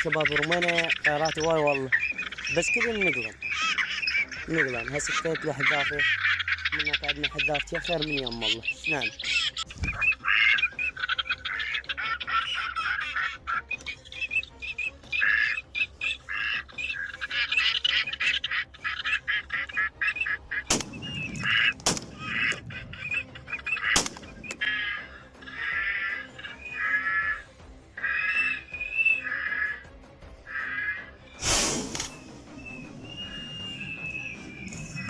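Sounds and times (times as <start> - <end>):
ducks quacking: 0.0 - 35.0
sharp bangs: 20.7 - 22.7, 23.9 - 24.7, 31.4 - 32.3.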